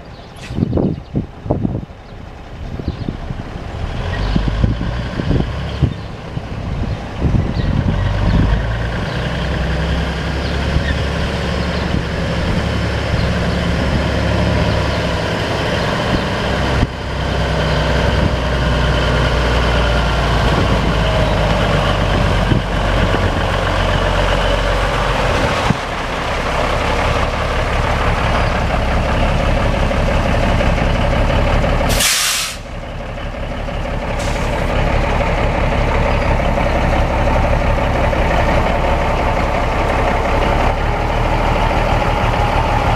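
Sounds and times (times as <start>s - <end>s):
truck engine running: 0.0s - 42.9s
air brake hiss: 31.9s - 32.7s, 34.2s - 34.6s.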